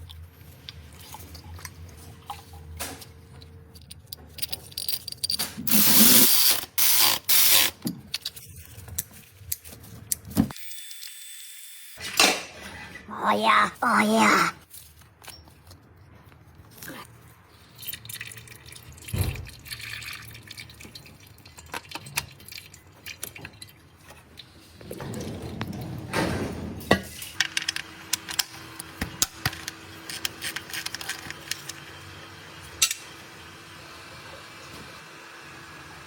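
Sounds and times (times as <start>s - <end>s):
tools and containers clinking: 2.3s - 10.6s, 26.9s - 31.8s
oil pouring and dripping: 17.6s - 24.6s.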